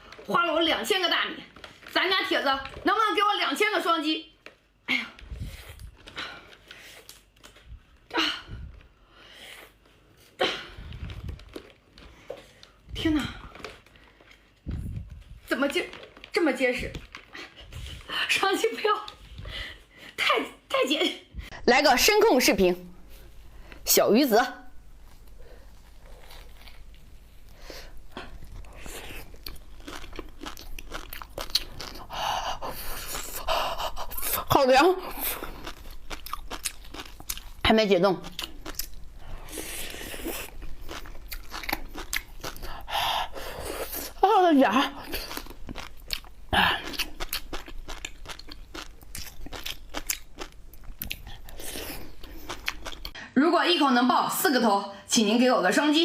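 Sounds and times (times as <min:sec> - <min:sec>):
chewing crunchy fish roe: 0:05.2 - 0:18.1, 0:25.0 - 0:53.2.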